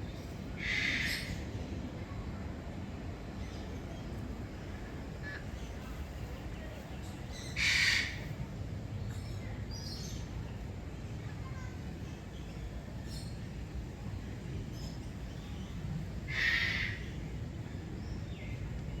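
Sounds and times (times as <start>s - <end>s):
bird harsh call: 7.4s - 8.2s, 16.3s - 17.1s.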